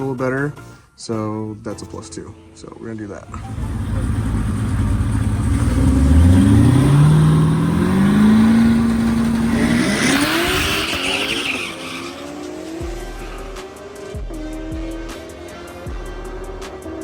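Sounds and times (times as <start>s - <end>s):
car engine accelerating hard: 3.3s - 15.8s.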